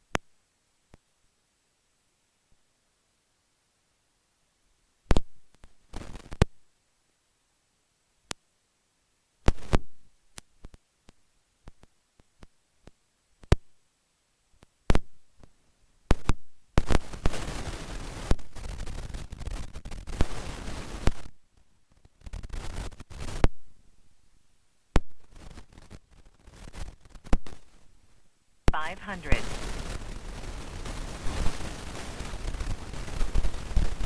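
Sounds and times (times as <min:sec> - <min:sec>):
radio static hiss: 0:28.7 - 0:31.3.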